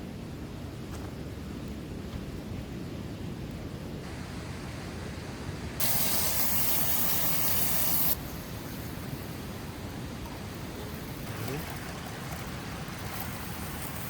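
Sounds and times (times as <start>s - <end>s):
loud steady hiss: 0.0s - 14.0s.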